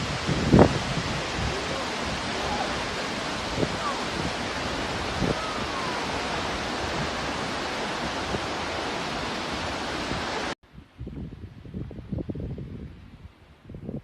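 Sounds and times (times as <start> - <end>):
rushing water hiss: 0.0 - 10.6
wind on microphone: 0.0 - 14.0.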